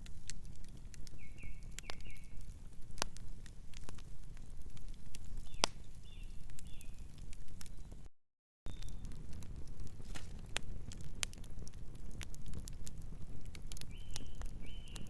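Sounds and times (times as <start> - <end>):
wood fire crackling and popping: 0.0 - 8.1, 8.7 - 15.0
bird chirping: 1.2 - 2.4, 13.9 - 15.0.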